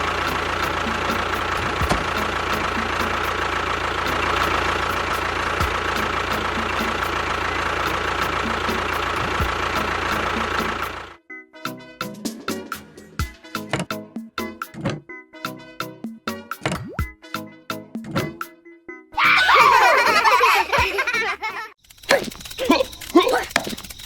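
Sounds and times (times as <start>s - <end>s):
vehicle engine running: 0.0s - 11.2s, 21.9s - 24.0s.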